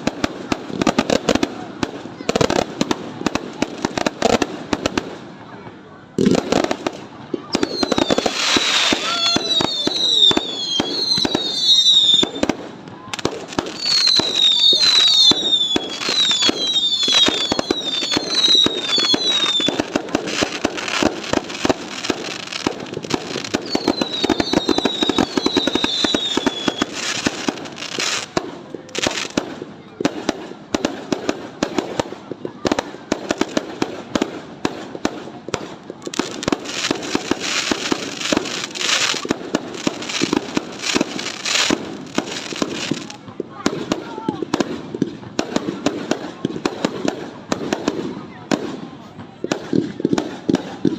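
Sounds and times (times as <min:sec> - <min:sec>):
fireworks bangs and crackles: 0:00.0 - 0:50.9
falling firework whistles: 0:07.5 - 0:12.6, 0:13.5 - 0:28.3.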